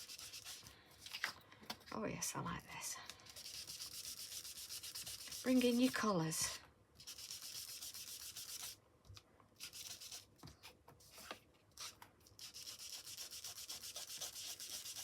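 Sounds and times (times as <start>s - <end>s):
ink blending tool rubbing on cardstock: 3.3s - 6.0s, 12.4s - 15.0s.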